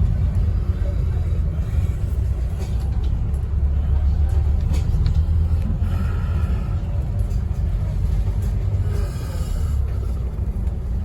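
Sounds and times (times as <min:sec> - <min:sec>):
bus engine low rumble: 0:00.0 - 0:11.0.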